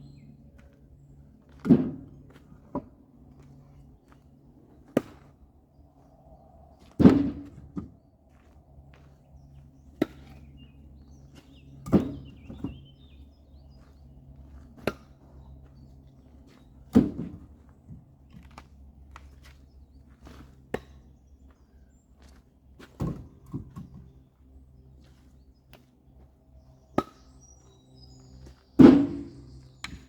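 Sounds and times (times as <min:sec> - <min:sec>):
faint low engine hum: 0:00.0 - 0:30.0.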